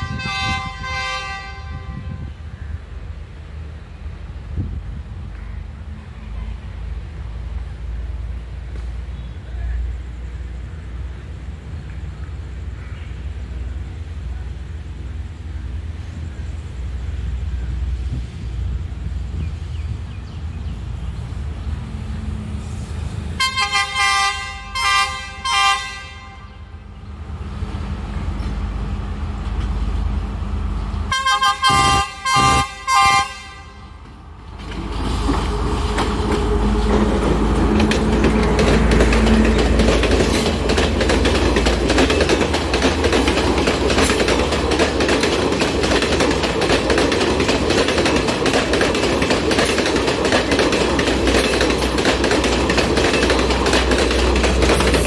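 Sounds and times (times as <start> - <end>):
train horn blasts: 0.0 - 2.5, 23.4 - 26.8, 31.1 - 34.0
train passing rumble: 0.0 - 55.0
wheels clattering over rail joints: 34.0 - 55.0.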